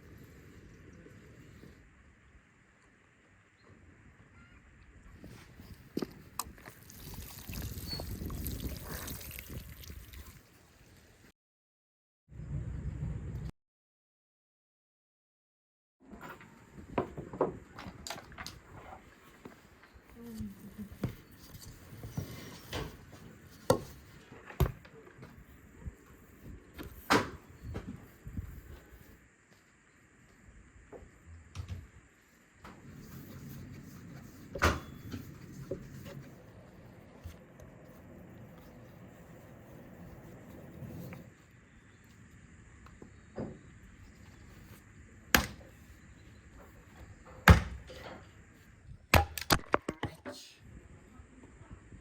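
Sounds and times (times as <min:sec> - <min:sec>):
sharp knocks and thuds: 0:47.4 - 0:48.0.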